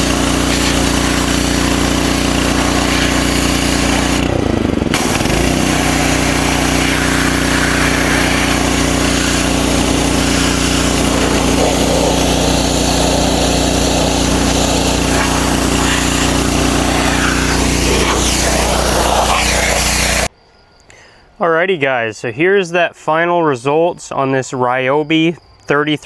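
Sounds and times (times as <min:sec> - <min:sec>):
hissing water spray: 0:00.0 - 0:20.3
pressure washer engine running: 0:00.0 - 0:20.3.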